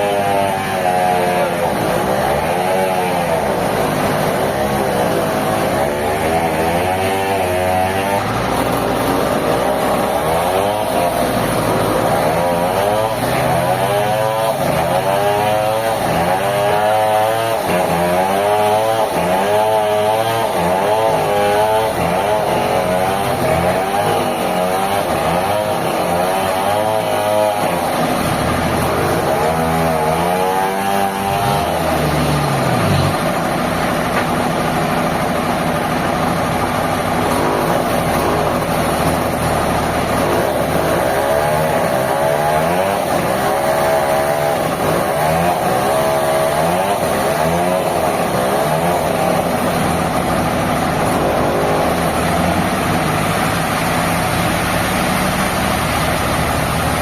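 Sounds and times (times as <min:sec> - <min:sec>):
engine-driven saw cutting: 0:00.0 - 0:57.0.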